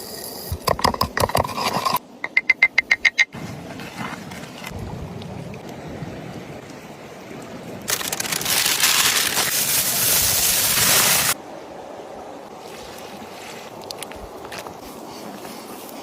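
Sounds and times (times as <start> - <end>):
loud even hiss: 8.0 - 11.4.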